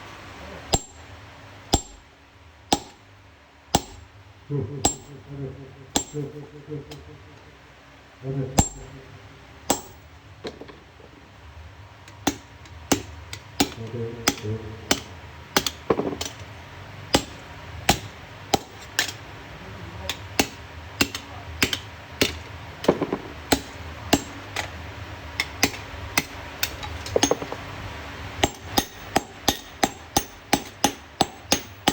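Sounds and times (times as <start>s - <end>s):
hammer striking steel: 0.7s - 1.1s, 1.7s - 2.0s, 2.7s - 3.0s, 3.7s - 4.1s, 4.8s - 5.2s, 5.9s - 6.4s, 8.6s - 8.9s, 9.7s - 10.1s, 12.2s - 16.4s, 17.1s - 19.2s, 20.1s - 24.4s, 25.4s - 27.6s, 28.4s - 31.9s.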